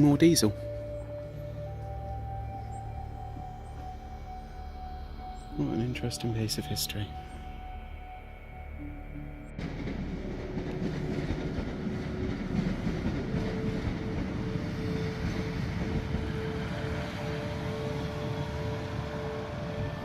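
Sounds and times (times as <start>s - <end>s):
train rumbling on rails: 9.5s - 20.0s.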